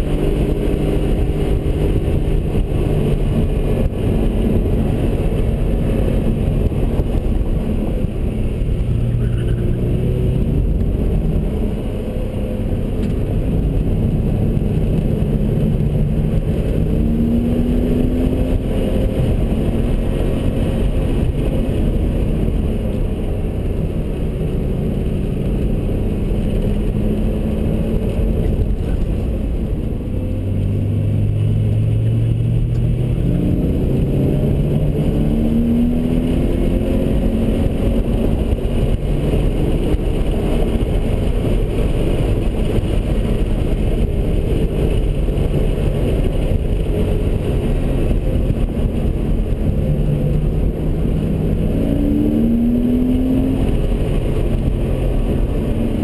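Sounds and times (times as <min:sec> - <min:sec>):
car engine revving: 0:00.0 - 0:56.0
road and wind noise: 0:00.0 - 0:56.0.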